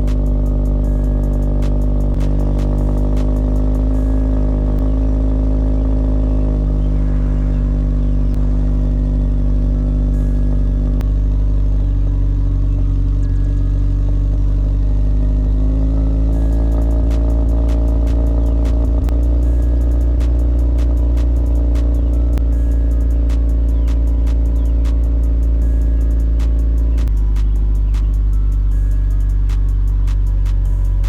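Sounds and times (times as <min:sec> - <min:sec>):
car engine droning: 0:00.0 - 0:31.0.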